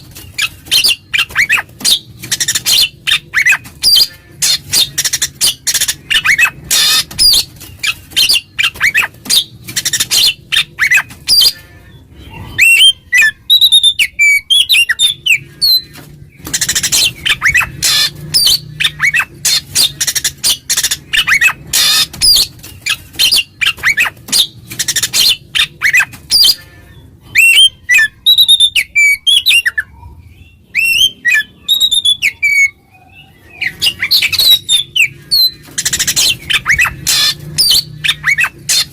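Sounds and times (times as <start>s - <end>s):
songbird chattering and whistling: 12.4s - 26.6s, 27.3s - 38.9s.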